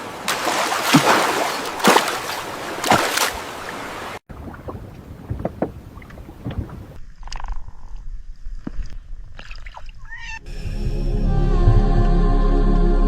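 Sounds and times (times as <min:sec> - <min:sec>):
water rushing and splashing: 0:00.0 - 0:07.0.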